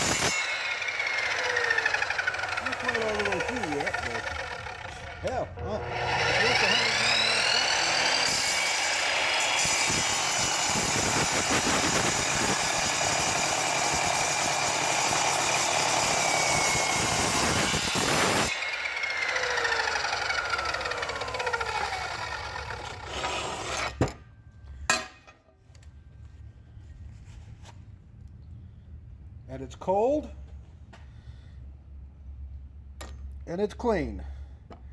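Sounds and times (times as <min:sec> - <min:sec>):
saw cutting steel screech: 0:00.0 - 0:24.0
saw motor whine spinning down: 0:00.3 - 0:08.4, 0:17.3 - 0:23.0.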